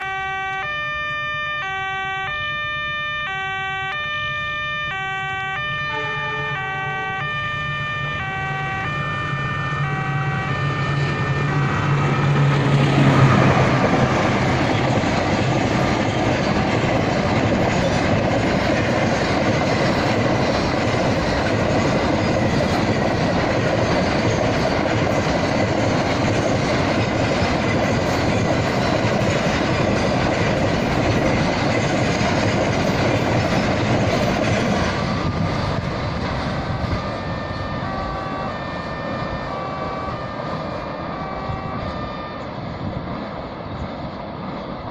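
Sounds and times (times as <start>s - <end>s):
level crossing alarm tones: 0.0s - 12.4s, 36.9s - 42.4s
diesel locomotive engine: 0.0s - 44.9s
train wheels clattering: 11.6s - 37.2s.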